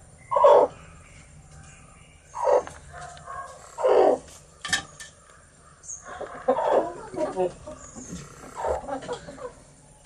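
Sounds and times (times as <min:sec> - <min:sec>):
animal calling: 0:00.2 - 0:00.9, 0:01.8 - 0:04.6, 0:05.2 - 0:09.6.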